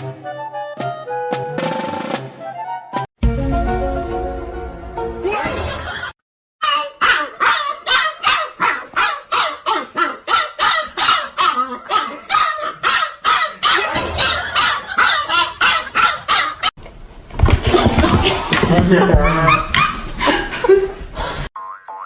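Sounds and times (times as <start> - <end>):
dog barking rapidly: 6.8 - 16.7.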